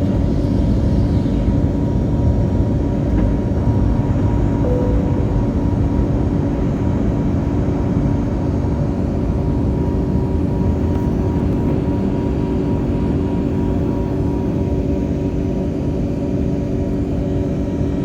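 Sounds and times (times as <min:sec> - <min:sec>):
jet engines rumbling in cabin: 0:00.0 - 0:18.0
faint steady hum: 0:04.4 - 0:06.8.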